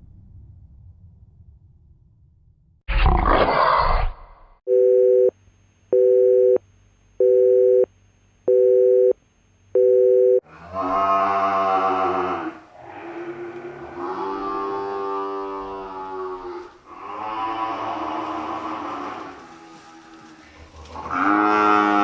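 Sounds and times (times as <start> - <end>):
telephone busy signal beeps: 4.7 - 5.3, 5.9 - 6.6, 7.2 - 7.9, 8.5 - 10.4
long falling animal call: 10.7 - 22.0.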